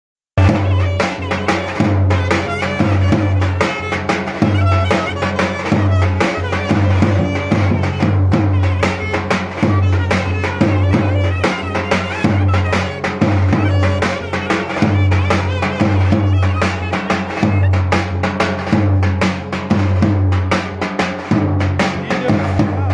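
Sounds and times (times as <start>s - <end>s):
clarinet folk dance melody: 0.4s - 18.4s
bass drum beating: 0.4s - 22.9s.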